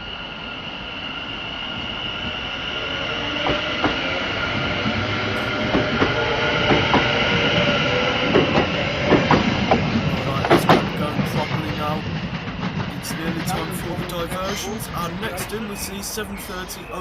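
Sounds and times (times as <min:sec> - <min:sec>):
train high whine: 0:00.0 - 0:17.0
train rumble: 0:00.0 - 0:17.0
train wheels clicking over rail joints: 0:03.4 - 0:17.0.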